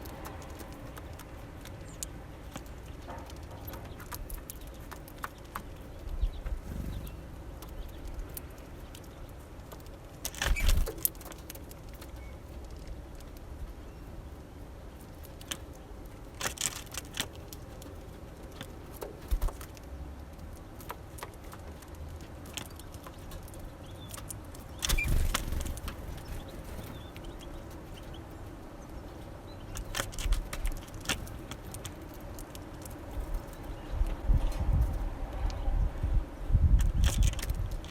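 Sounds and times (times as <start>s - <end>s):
birds pecking and tapping: 0.0s - 35.6s, 36.8s - 37.9s
low rumbles: 6.3s - 8.4s.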